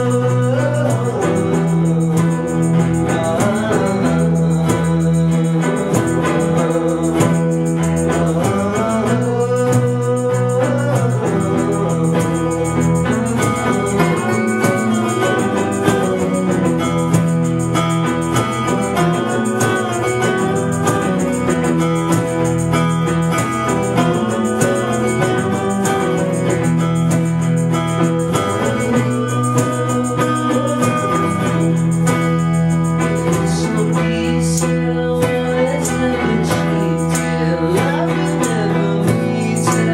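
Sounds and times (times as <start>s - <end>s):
blues rock guitar: 0.0s - 39.9s
rock band playing live: 0.0s - 39.9s
steady bass notes: 0.0s - 39.9s.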